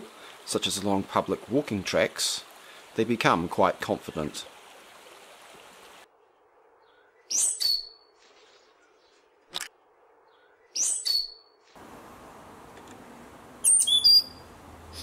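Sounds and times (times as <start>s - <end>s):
high bird calls: 6.8s - 8.2s, 10.3s - 11.6s, 13.6s - 15.0s.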